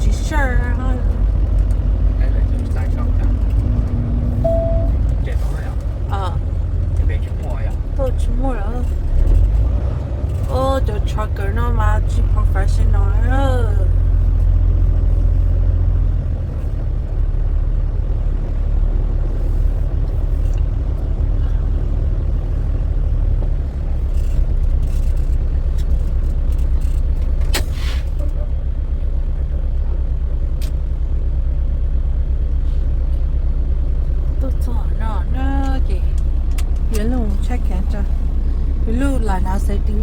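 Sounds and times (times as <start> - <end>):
truck engine rumbling: 0.0 - 40.0
short hiss: 27.6 - 28.2.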